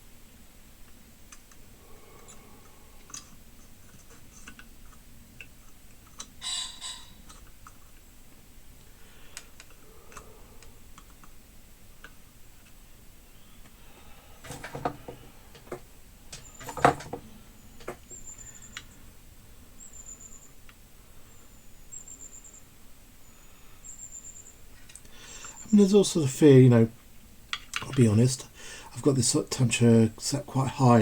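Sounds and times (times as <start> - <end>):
knocks and clatters: 14.4 - 18.0.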